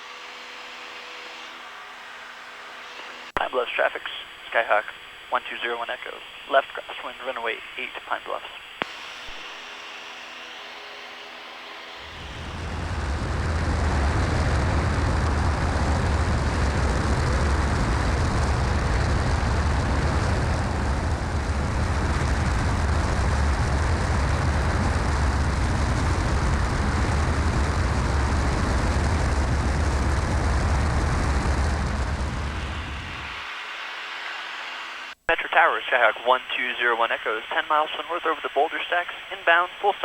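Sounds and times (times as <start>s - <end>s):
airplane engine droning: 11.4s - 35.2s
wind rush: 12.1s - 33.5s.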